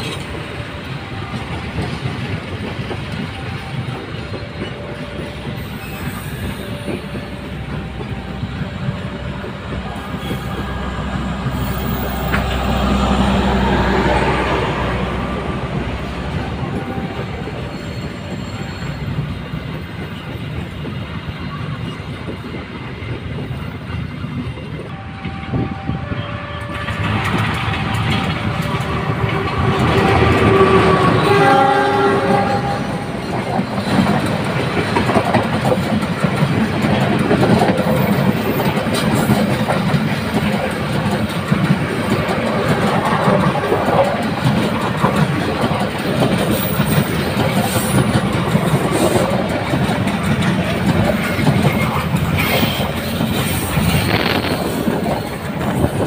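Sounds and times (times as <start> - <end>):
train wheels clattering on rails: 0.0 - 56.0
locomotive horn: 3.2 - 19.2, 24.8 - 33.4, 52.4 - 55.0.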